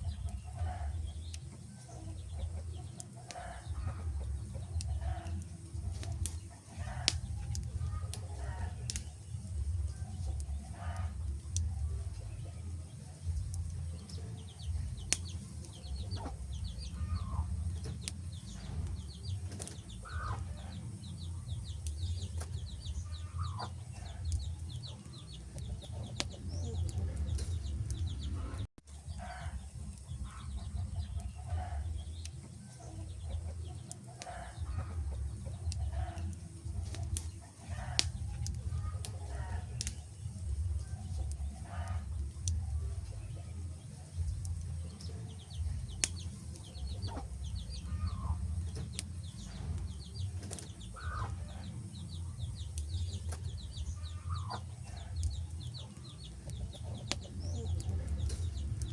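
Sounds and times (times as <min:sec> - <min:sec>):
wood fire crackling: 0:00.0 - 0:58.9
bird-like calls: 0:14.8 - 0:28.6, 0:45.3 - 0:58.9.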